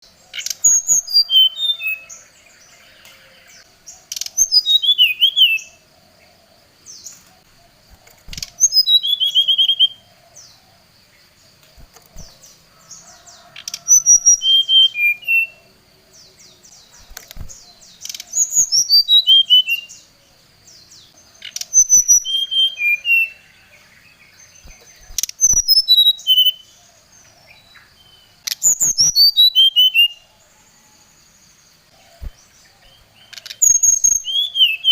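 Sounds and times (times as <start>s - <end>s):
bird singing whistled notes: 0.0s - 5.9s, 6.8s - 10.6s, 11.8s - 26.8s, 27.5s - 31.0s, 32.0s - 34.9s
sharp click: 17.0s - 18.3s.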